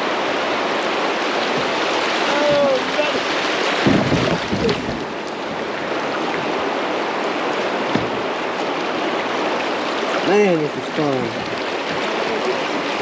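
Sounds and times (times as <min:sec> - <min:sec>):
rushing creek rapids: 0:00.0 - 0:13.0
knock on kayak: 0:01.4 - 0:05.1, 0:07.8 - 0:08.3.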